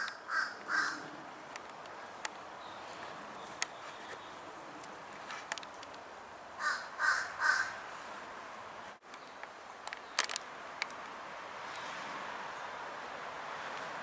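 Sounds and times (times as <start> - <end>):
bird harsh caw calls: 0.0 - 1.1, 6.6 - 8.0
sharp clicks: 9.1 - 11.1.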